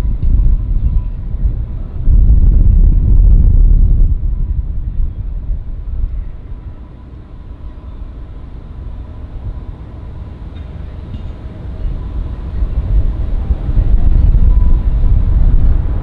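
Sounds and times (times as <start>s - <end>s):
wind on microphone: 0.0s - 16.0s
faint steady whine: 4.2s - 16.0s
distant jet engines rumbling: 5.2s - 16.0s.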